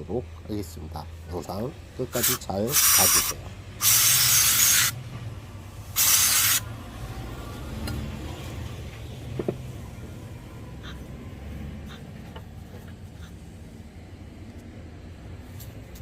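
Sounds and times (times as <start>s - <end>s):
spray hissing: 2.2s - 5.0s, 6.0s - 6.7s.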